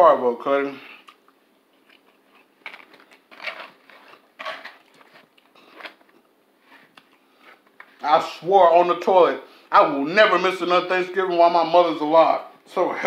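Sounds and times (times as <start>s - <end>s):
close-up chewing: 1.0s - 7.9s.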